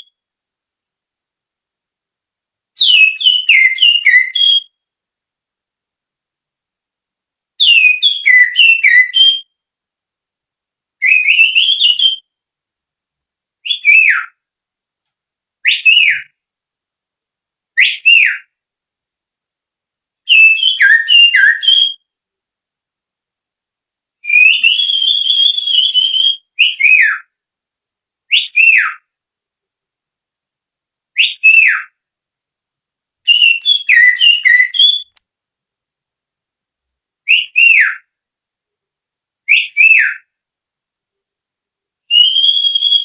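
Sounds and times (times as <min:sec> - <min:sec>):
finger whistling birdsong: 0:00.0 - 0:00.2, 0:02.8 - 0:04.8, 0:07.6 - 0:09.6, 0:11.0 - 0:12.4, 0:13.6 - 0:14.4, 0:15.6 - 0:16.4, 0:17.7 - 0:18.6, 0:20.3 - 0:22.2, 0:24.2 - 0:27.4, 0:28.3 - 0:29.2, 0:31.2 - 0:32.0, 0:33.3 - 0:35.2, 0:37.3 - 0:38.1, 0:39.5 - 0:40.4, 0:42.1 - 0:43.0.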